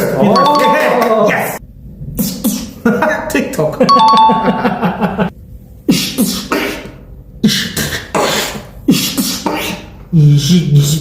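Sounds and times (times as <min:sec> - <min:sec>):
vocal beatboxing hits: 0:02.2 - 0:02.8, 0:05.9 - 0:09.9.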